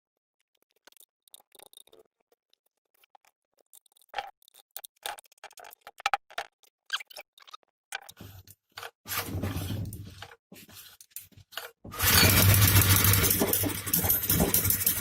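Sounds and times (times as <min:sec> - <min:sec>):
tools and metal parts clinking: 0:08.2 - 0:15.0.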